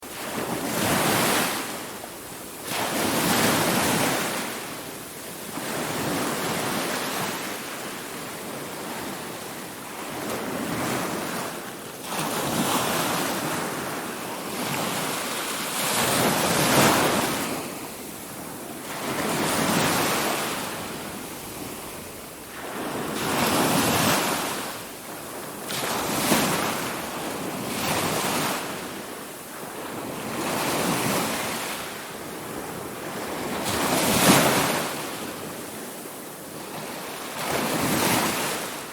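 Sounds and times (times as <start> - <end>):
ocean waves breaking on shore: 0.0 - 38.9
wind noise on microphone: 0.0 - 38.9.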